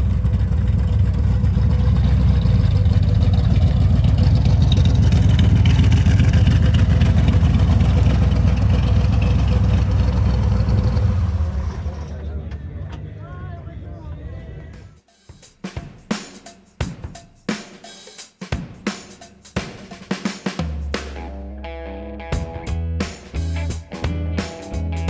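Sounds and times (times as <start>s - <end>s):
car engine and exhaust running: 0.0s - 13.4s.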